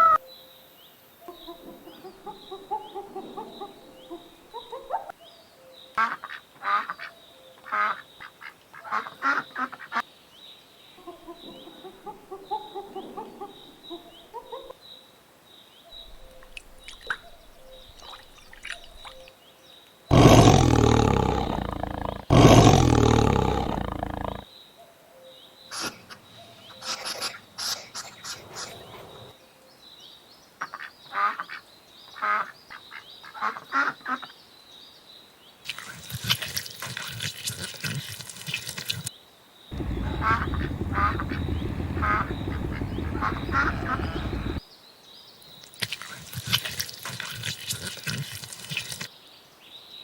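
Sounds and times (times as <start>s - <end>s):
farm animal calls: 20.1s - 24.4s, 25.7s - 29.3s, 39.8s - 44.6s
loud low rumble: 39.8s - 44.6s.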